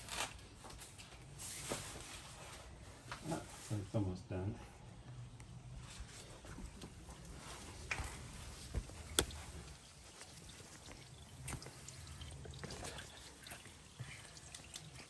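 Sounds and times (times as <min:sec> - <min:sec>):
engine oil dripping into drain pan: 0:09.0 - 0:15.0.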